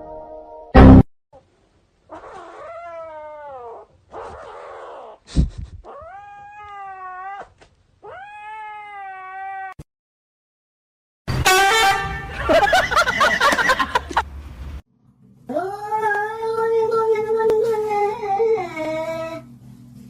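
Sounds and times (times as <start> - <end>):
cat yowling: 2.1 - 5.2, 5.9 - 9.8.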